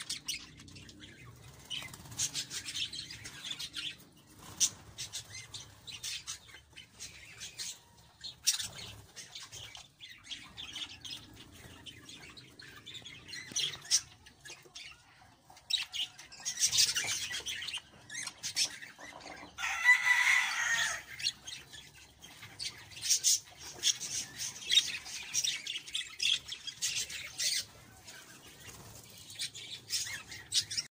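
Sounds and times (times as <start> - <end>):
budgerigars chirping: 0.0 - 15.0.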